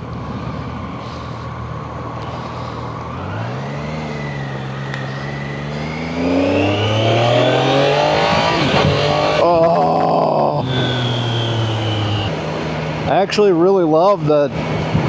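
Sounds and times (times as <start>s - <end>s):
motorcycle engine accelerating: 1.7s - 13.4s.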